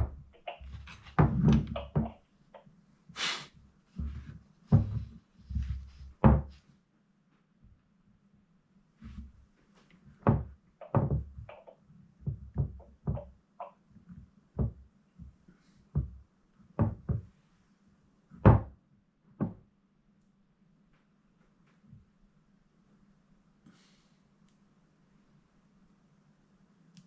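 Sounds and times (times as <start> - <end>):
faint steady hum: 1.6 - 27.0.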